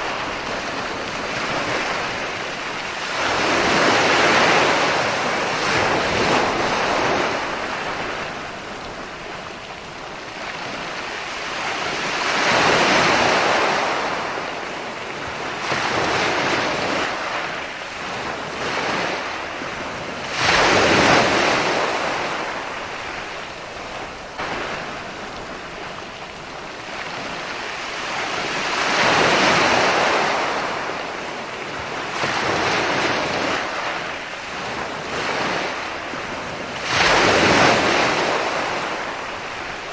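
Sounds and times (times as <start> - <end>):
waves breaking and washing in: 0.0 - 39.9.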